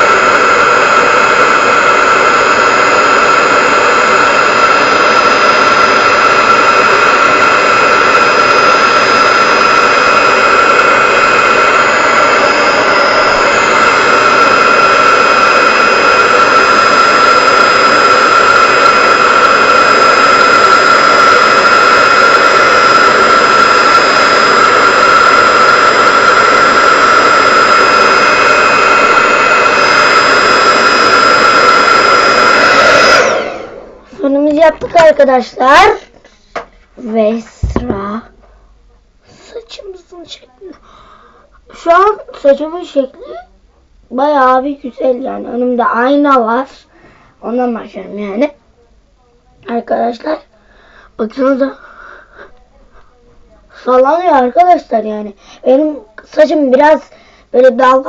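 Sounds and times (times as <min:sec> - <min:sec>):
hair dryer running: 0:00.0 - 0:36.7, 0:37.6 - 0:38.0.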